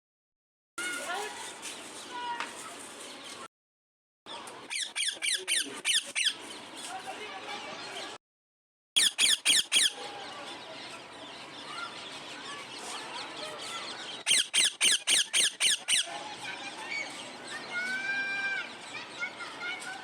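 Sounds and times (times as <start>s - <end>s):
parrot screeching: 4.7s - 6.4s, 9.0s - 10.0s, 14.2s - 16.1s
parrot chirping and squeaking: 4.7s - 6.7s, 9.0s - 10.0s, 14.2s - 16.1s.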